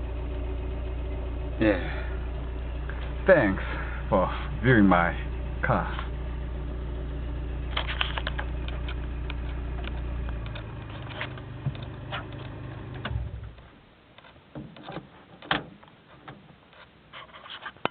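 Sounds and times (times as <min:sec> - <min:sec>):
car engine idling and shutting off: 0:00.0 - 0:17.2
light clicks and knocks: 0:07.7 - 0:17.9.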